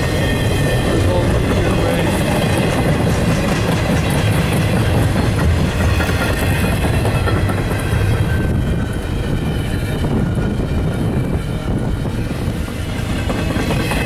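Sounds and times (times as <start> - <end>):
steel wheels rumbling on rails: 0.0 - 14.0
wheels clicking over track: 1.4 - 9.0.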